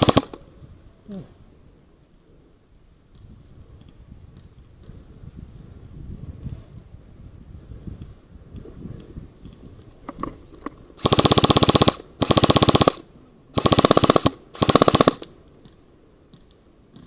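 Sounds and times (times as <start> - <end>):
airsoft gun firing bursts: 0.0 - 0.4, 11.0 - 15.3.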